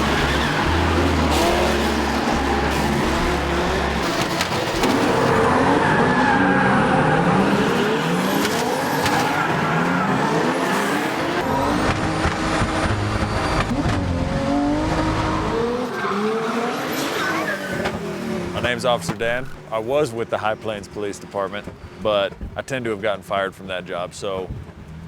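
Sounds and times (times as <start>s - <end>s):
tires squealing: 0.0s - 19.7s
engines revving hard: 0.0s - 22.4s.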